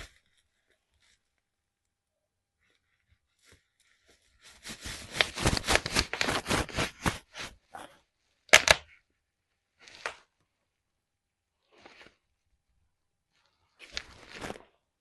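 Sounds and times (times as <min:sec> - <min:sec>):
bubble wrap popping underfoot: 0:04.4 - 0:07.6, 0:13.8 - 0:14.8.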